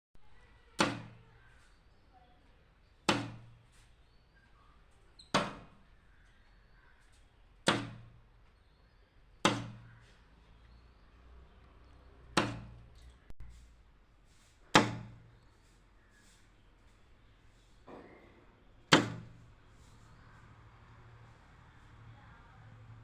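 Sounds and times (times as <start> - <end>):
bird beak knocking on glass: 9.5 - 10.0.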